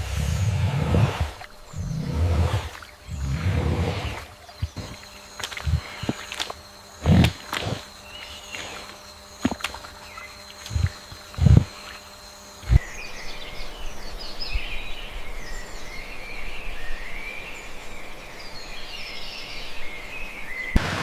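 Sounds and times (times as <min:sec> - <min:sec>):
birds chirping: 0:00.0 - 0:17.7
insects: 0:00.0 - 0:21.0.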